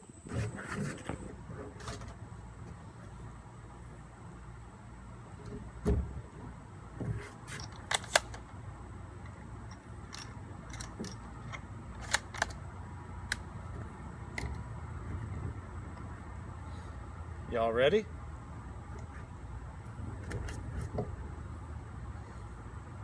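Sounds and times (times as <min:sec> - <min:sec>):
rifle bolt clicks: 0:07.6 - 0:08.4, 0:10.1 - 0:12.6.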